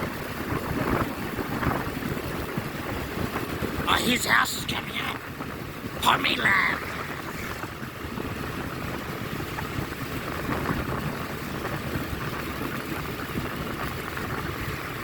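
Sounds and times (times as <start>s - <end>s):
vehicle engine and road noise: 0.0s - 15.0s
wind on microphone: 6.7s - 15.0s.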